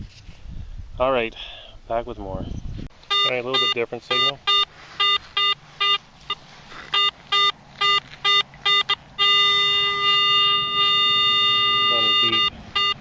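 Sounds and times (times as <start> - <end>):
metal detector beeping: 3.0 - 13.0
metal detector steady tone: 3.0 - 13.0.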